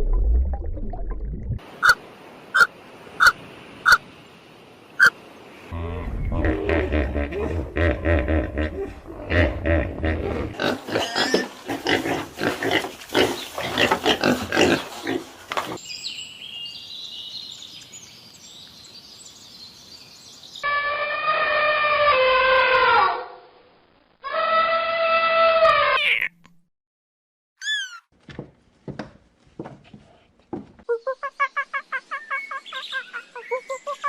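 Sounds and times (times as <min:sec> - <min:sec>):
rapid rough animal calls: 0:02.6 - 0:04.0
long pitched animal calls: 0:24.2 - 0:26.0
faint high chirping: 0:27.6 - 0:28.1.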